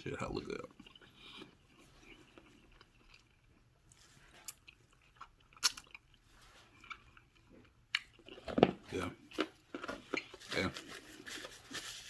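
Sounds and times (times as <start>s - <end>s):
person chewing chicken: 0.7s - 8.6s.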